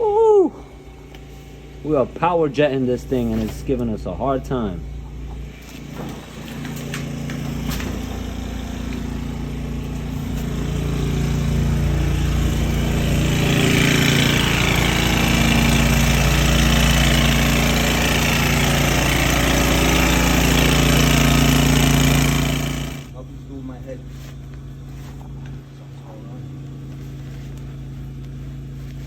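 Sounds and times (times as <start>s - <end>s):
water jetter engine running: 4.4s - 23.2s.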